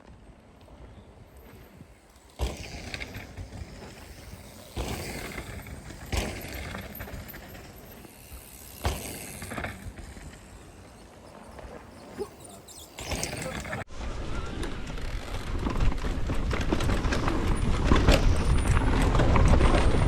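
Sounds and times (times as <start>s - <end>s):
tyres rolling on dirt: 0.0s - 20.0s
mountain bikes landing jumps: 0.6s - 13.9s.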